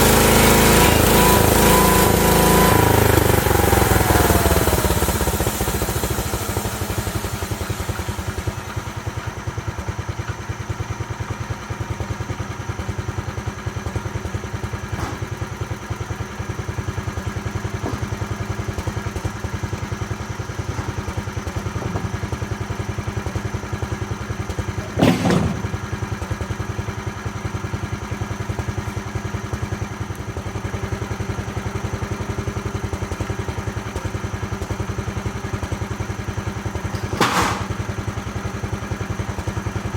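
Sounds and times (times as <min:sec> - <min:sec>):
sawmill engine idling: 0:00.0 - 0:39.9
sharp knock: 0:25.0 - 0:25.8.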